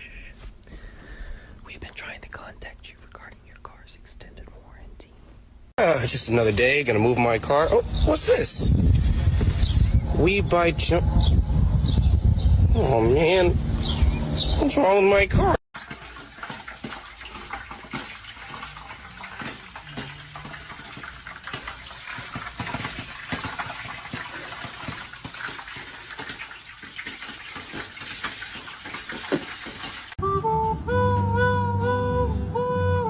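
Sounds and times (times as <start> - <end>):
running water rushing: 15.8 - 30.2
music: 30.2 - 33.0.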